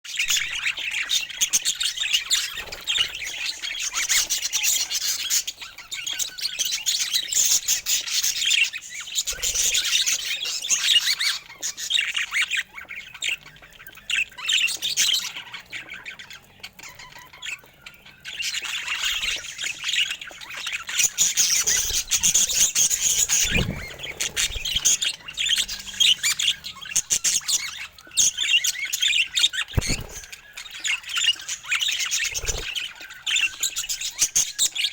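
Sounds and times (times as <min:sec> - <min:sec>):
budgerigars chattering: 0:00.1 - 0:34.9.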